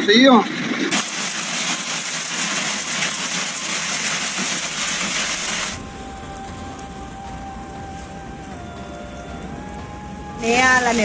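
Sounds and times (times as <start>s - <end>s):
hailstones clattering: 0.9s - 8.8s.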